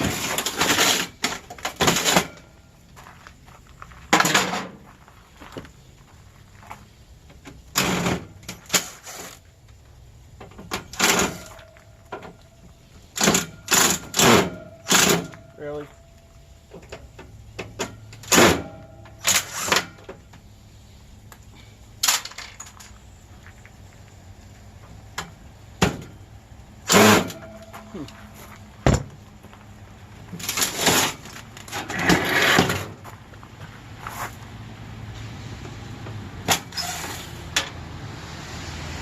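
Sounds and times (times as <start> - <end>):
metal clanks and bangs: 0.0 - 2.6, 4.1 - 4.8, 10.4 - 12.4, 26.8 - 28.2.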